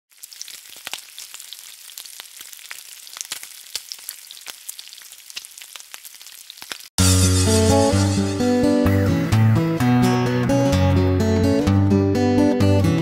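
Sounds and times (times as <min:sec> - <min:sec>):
food frying in hot oil: 0:00.1 - 0:06.9.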